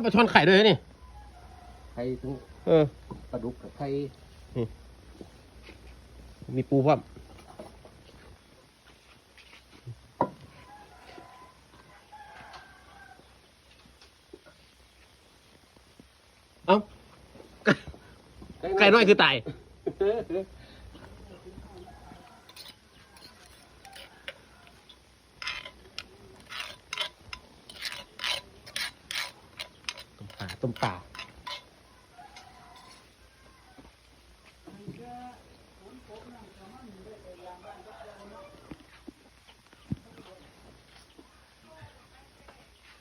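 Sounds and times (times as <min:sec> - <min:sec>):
rooster crowing faintly: 0:00.2 - 0:03.8, 0:09.8 - 0:13.7, 0:20.6 - 0:42.1
irregular clicks and scrapes: 0:22.2 - 0:31.7.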